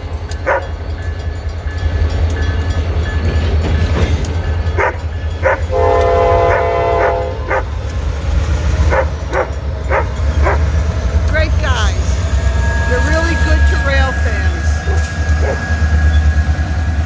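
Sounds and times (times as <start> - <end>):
diesel freight train rumbling: 0.0 - 17.0
locomotive air horn: 5.7 - 7.6.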